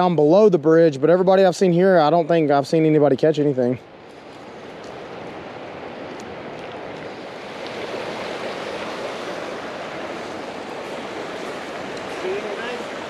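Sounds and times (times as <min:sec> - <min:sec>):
creek water running: 0:00.0 - 0:13.0.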